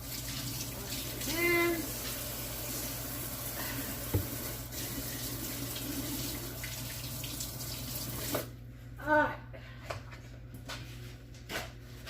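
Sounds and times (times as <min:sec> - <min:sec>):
faucet water splashing: 0:00.0 - 0:08.5.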